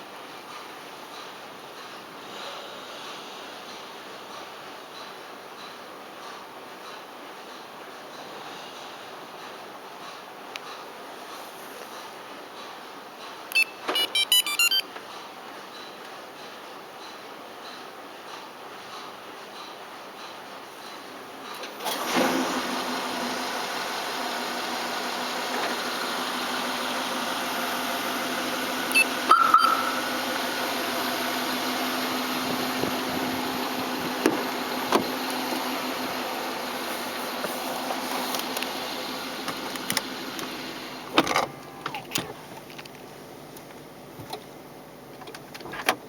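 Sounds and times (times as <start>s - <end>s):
car engine running: 22.4s - 42.9s.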